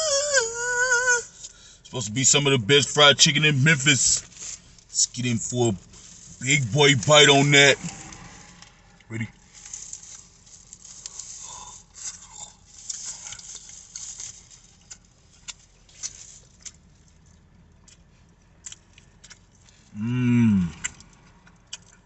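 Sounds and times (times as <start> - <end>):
person humming mmm: 0.0 - 1.4, 19.9 - 21.0
crunching bite into fried chicken: 9.6 - 22.0
chewing with crisp mouth clicks: 14.8 - 20.0, 20.7 - 22.0.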